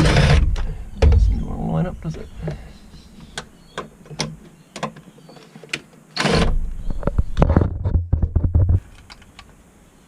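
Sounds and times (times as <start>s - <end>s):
loud plastic scrape: 0.0s - 0.7s
low rumble of handling: 0.0s - 3.5s.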